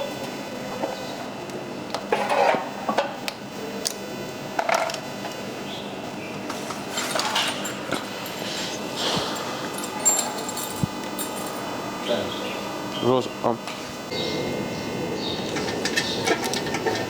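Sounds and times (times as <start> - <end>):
metallic clinks of hand tools: 9.8 - 11.6.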